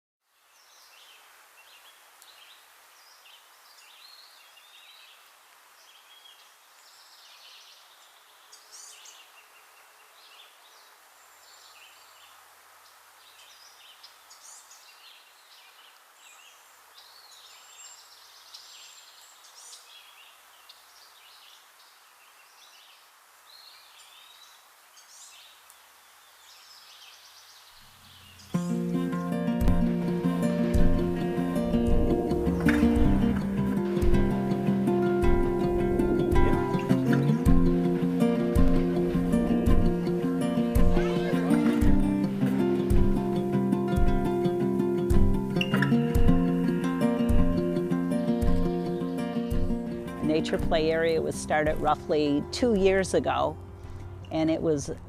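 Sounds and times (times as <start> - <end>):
faint steady hiss: 0.2 - 55.0
birds chirping and singing: 26.2 - 46.7.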